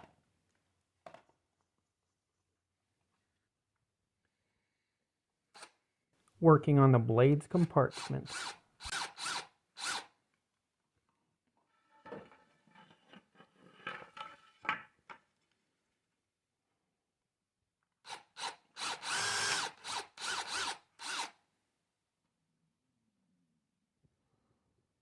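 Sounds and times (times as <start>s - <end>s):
power drill cutting into wood: 5.6s - 5.8s, 8.0s - 10.2s, 18.0s - 21.4s.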